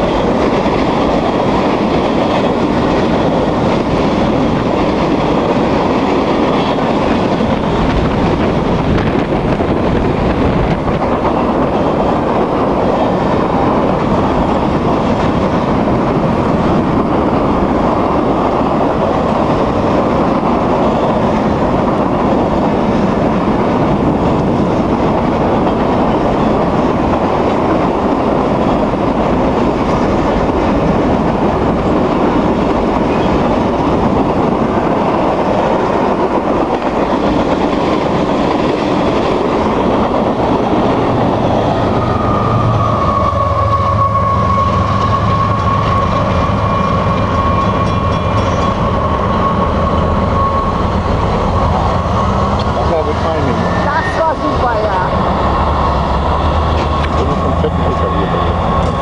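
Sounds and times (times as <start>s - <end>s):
freight wagons rumbling: 0.0s - 59.0s
low engine drone: 50.4s - 59.0s.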